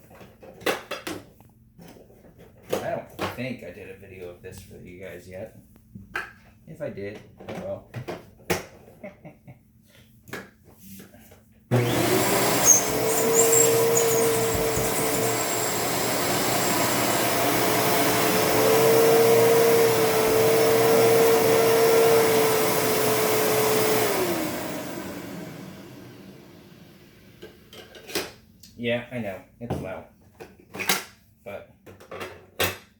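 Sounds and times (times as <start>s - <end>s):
vacuum cleaner motor whine: 11.7s - 27.5s.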